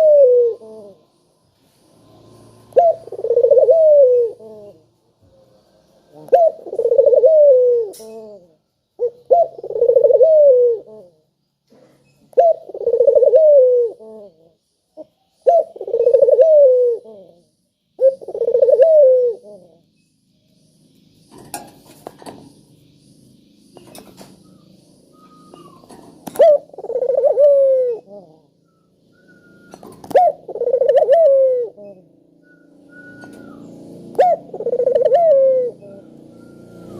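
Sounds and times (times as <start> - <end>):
dove cooing: 0.0 - 1.1, 2.6 - 11.3, 12.3 - 19.9, 25.1 - 36.9.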